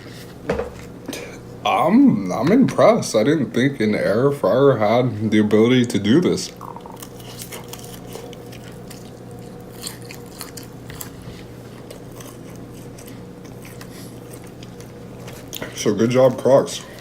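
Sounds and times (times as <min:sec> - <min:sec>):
person chewing crispy chicken: 0:06.6 - 0:15.8.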